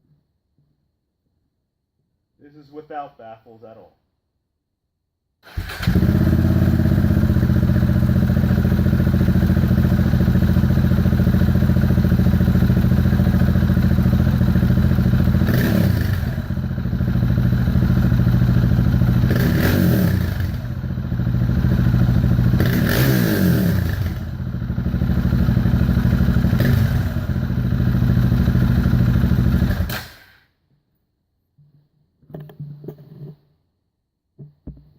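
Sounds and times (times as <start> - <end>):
motorcycle engine idling and revving: 5.5 - 30.2.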